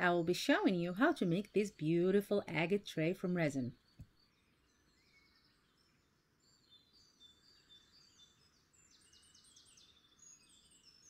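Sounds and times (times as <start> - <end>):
faint birdsong chirps and whistles: 3.4 - 11.0.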